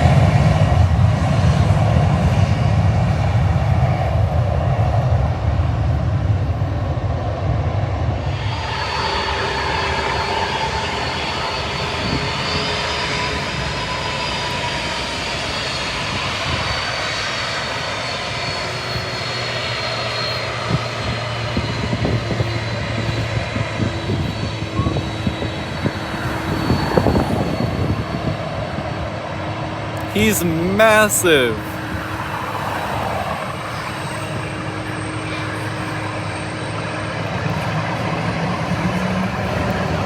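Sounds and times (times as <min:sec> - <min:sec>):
jet engines running: 0:00.0 - 0:30.1.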